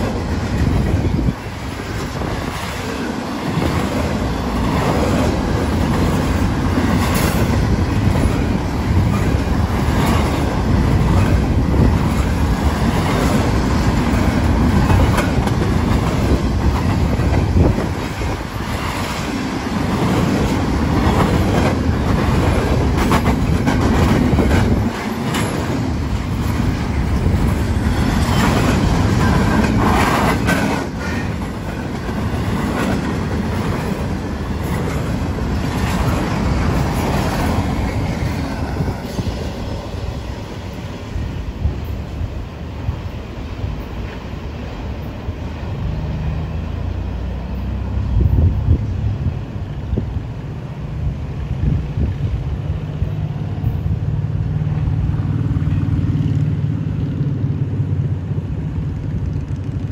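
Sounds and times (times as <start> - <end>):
freight train rumbling on rails: 0.0 - 59.9
wheels clicking over track: 58.6 - 59.9.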